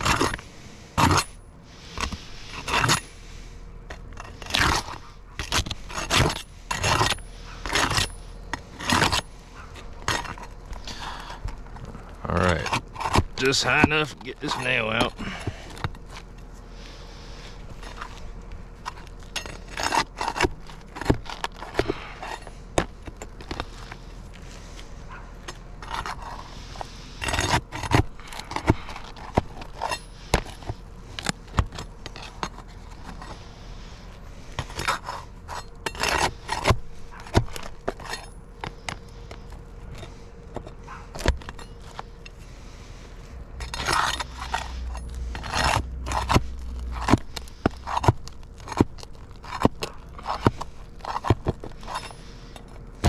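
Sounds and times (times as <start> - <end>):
metal bar scraping shingles: 0.0 - 11.9, 12.5 - 53.0.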